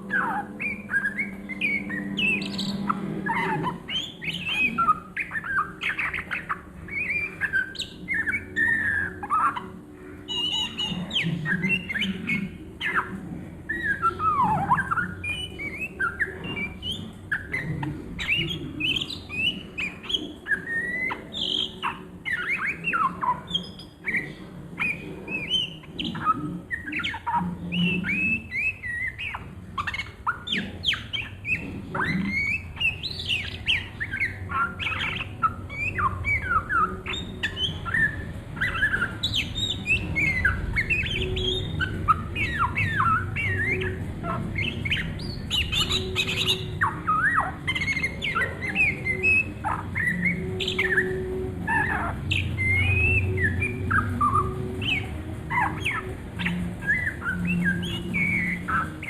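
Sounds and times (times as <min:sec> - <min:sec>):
songbird singing varied chirps: 0:00.0 - 0:59.0.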